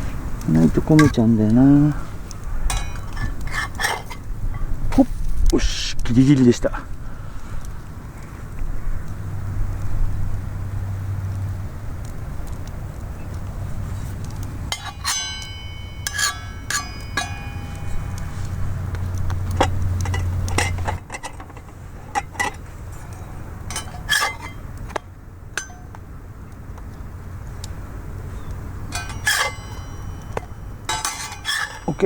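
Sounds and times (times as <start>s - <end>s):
metal cookware clinking: 2.6s - 4.7s, 14.7s - 26.0s, 28.8s - 32.0s
low steady rumble: 6.9s - 32.0s.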